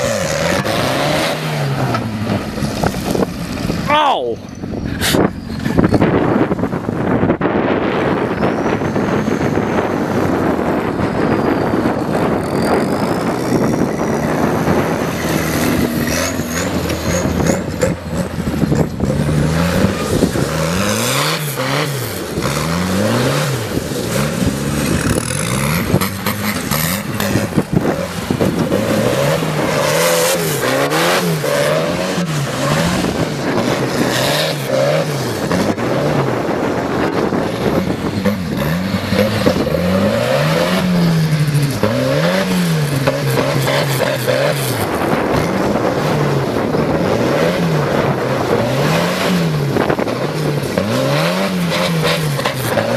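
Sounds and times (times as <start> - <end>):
tractor engine revving: 0.0 - 52.9.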